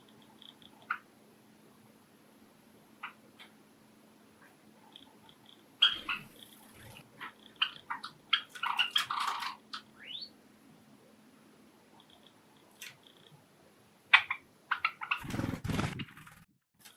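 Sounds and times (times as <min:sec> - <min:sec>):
sparrows chirping: 0:04.9 - 0:10.4.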